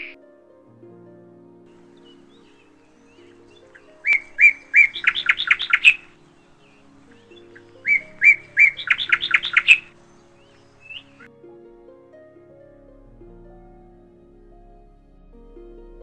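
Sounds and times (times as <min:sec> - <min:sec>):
soft background music: 0:00.0 - 0:16.0
songbird singing: 0:01.7 - 0:11.4.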